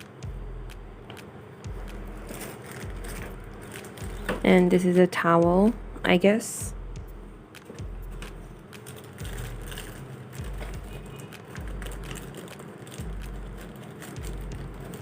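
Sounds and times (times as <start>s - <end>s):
packaging rustling: 2.1s - 4.4s, 8.2s - 15.0s.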